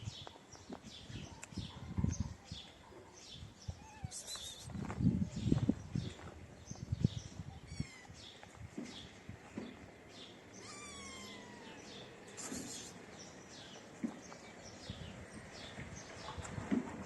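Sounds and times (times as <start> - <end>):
kitten mewing: 10.6 - 13.0
high bird chirps: 10.6 - 13.4.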